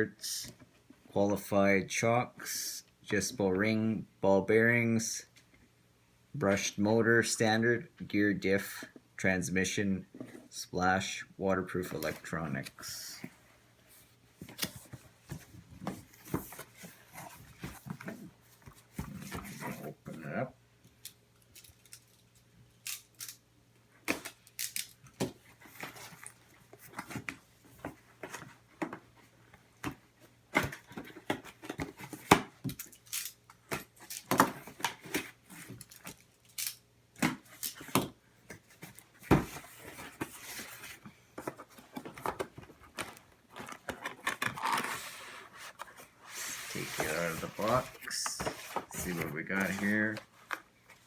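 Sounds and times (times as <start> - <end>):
clicks and rustles of cardboard: 24.0 - 51.0
cardboard box being opened: 39.3 - 50.6.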